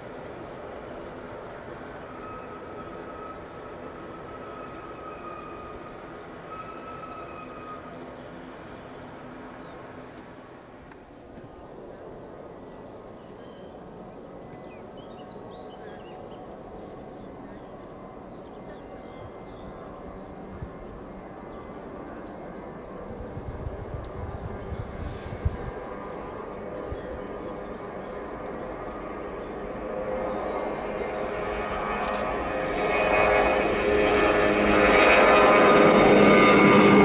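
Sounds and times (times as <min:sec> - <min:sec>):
jet engines running: 0:00.0 - 0:37.0
birds chirping: 0:07.3 - 0:36.5.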